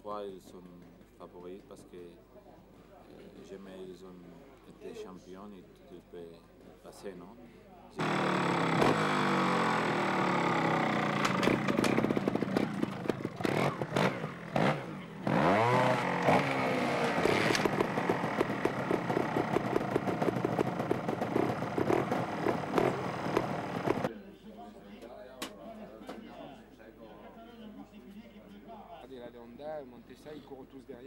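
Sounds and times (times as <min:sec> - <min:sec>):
two-stroke motorcycle engine revving: 0:08.0 - 0:24.1.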